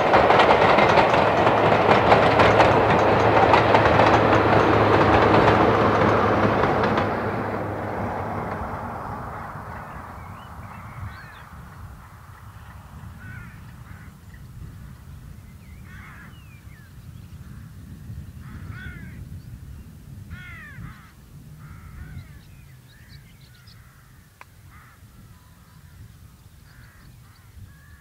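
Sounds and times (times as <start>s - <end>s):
birds harsh calls: 9.0s - 28.0s.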